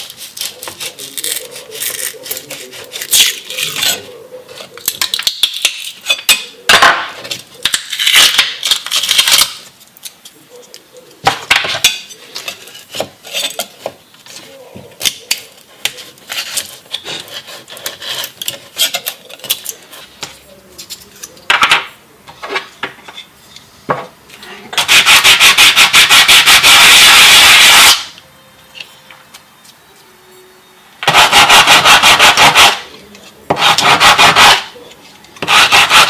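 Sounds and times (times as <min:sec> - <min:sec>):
small hard objects clicking: 0:00.0 - 0:03.9, 0:04.8 - 0:06.4, 0:07.6 - 0:10.4
fast rasping strokes: 0:35.4 - 0:36.0.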